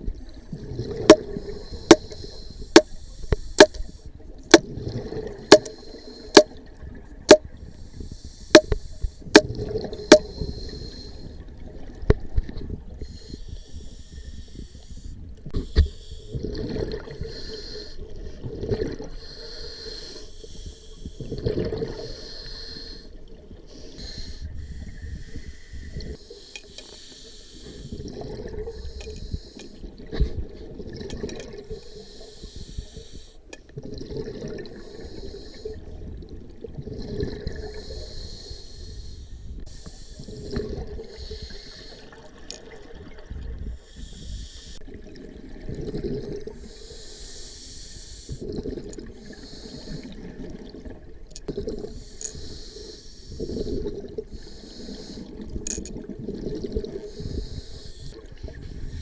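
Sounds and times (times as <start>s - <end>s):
exhaled bubbles underwater: 0.0s - 2.9s, 3.6s - 7.9s, 8.5s - 13.2s, 16.3s - 19.4s, 21.2s - 22.3s, 27.8s - 29.0s, 29.8s - 32.2s, 33.6s - 38.5s, 40.2s - 43.8s, 44.8s - 46.8s, 48.3s - 52.6s, 53.4s - 59.0s
regulator breathing hiss: 1.6s - 4.2s, 7.9s - 9.3s, 13.0s - 16.3s, 19.2s - 21.3s, 22.1s - 23.1s, 23.7s - 28.0s, 28.7s - 29.8s, 31.8s - 33.4s, 37.8s - 40.6s, 41.2s - 42.2s, 43.8s - 44.8s, 46.6s - 48.4s, 49.4s - 50.1s, 51.9s - 55.4s, 57.1s - 58.2s.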